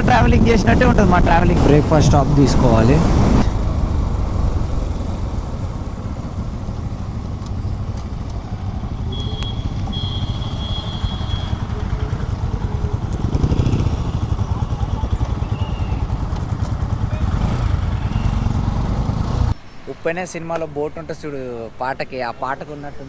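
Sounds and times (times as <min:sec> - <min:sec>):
wind rumble on microphone: 0:00.0 - 0:09.9
motorcycle running at speed: 0:00.0 - 0:19.6.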